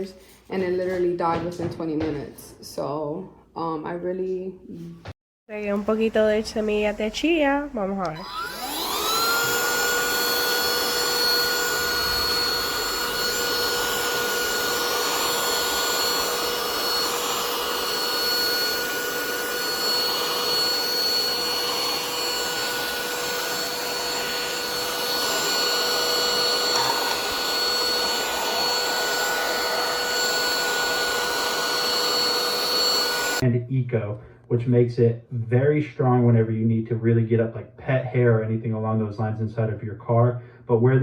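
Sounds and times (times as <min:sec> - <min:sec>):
handheld vacuum running: 0:07.8 - 0:33.4.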